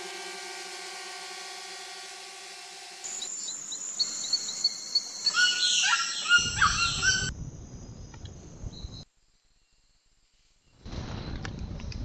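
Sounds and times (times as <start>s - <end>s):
birds chirping and whistling: 3.1s - 7.3s.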